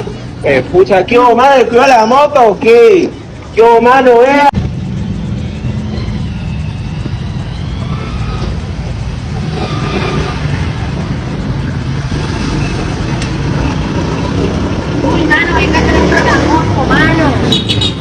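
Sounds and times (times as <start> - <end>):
street traffic: 0.0 - 18.0
vehicle engine running: 4.6 - 18.0.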